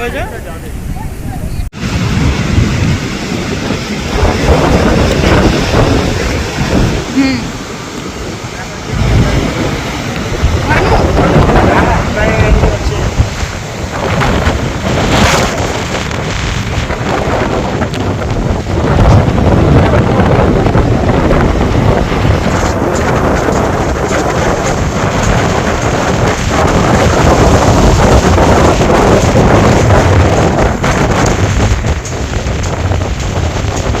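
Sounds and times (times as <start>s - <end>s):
strong wind buffeting microphone: 0.0s - 34.0s.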